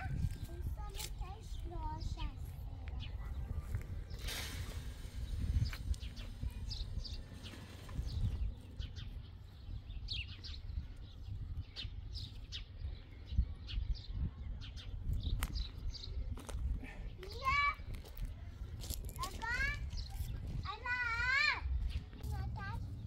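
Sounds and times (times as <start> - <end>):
small birds chirping: 0.0 - 23.0
low rumbling background: 21.6 - 23.0.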